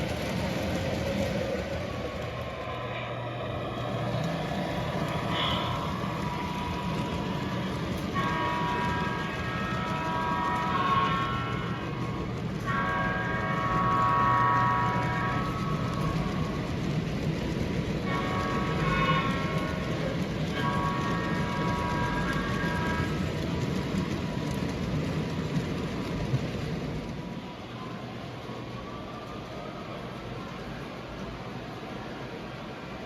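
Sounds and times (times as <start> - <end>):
model train rumbling on track: 0.0 - 33.0
train horn blasts: 4.2 - 16.7, 18.0 - 23.6.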